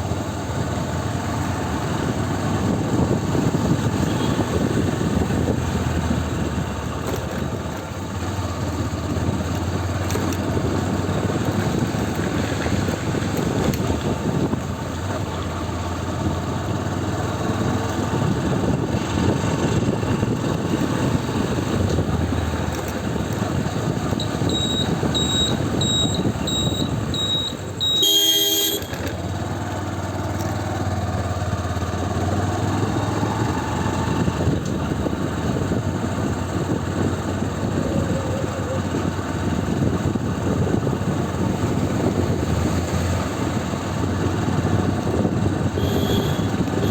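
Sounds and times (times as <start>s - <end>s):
motorcycle engine: 0.0s - 46.9s
wind noise: 0.0s - 46.9s
horn honk: 3.9s - 4.8s, 24.2s - 29.2s, 45.7s - 46.9s
short high beeps: 24.2s - 28.9s.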